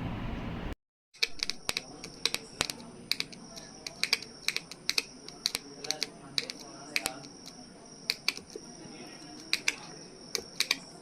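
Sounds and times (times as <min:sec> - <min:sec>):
light irregular clicks: 0:01.2 - 0:08.7, 0:09.3 - 0:11.0.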